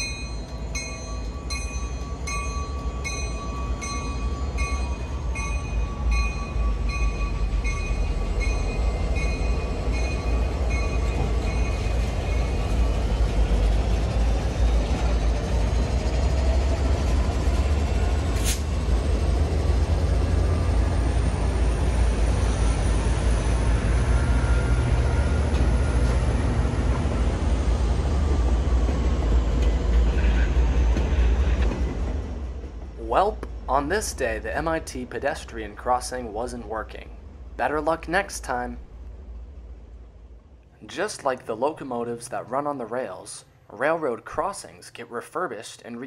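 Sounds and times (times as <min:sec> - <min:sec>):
bell ringing: 0:00.0 - 0:12.5
diesel locomotives rumbling past: 0:00.0 - 0:44.8.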